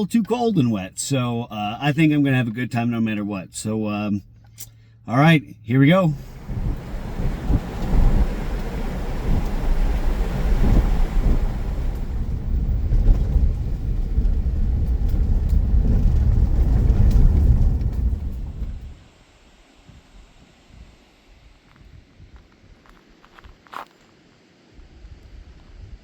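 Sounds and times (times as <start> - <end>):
car driving rumble from inside: 6.0 - 19.0.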